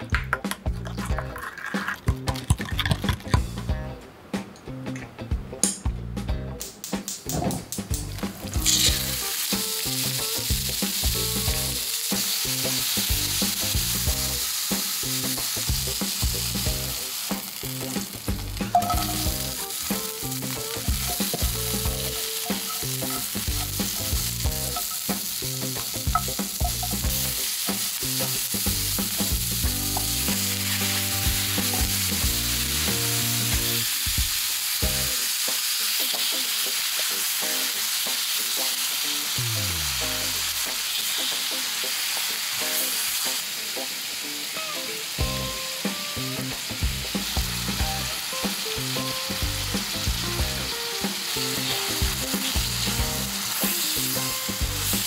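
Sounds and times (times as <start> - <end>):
meat sizzling in a skillet: 7.3 - 55.0
chopsticks clicking and scraping: 8.6 - 9.0.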